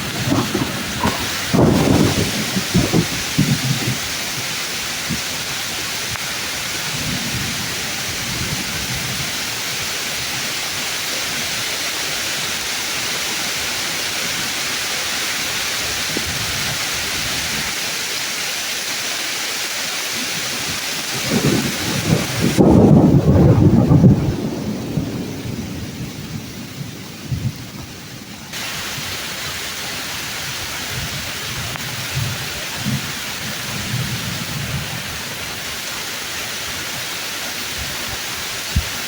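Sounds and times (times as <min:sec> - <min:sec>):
thunder rolling: 0:00.0 - 0:05.6, 0:20.6 - 0:29.1
heavy rain on trees: 0:00.0 - 0:39.0.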